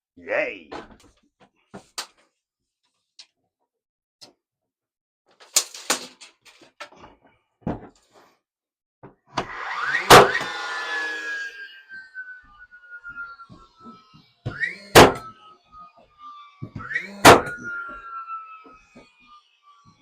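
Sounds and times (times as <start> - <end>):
tone falling in pitch: 11.5 - 19.9.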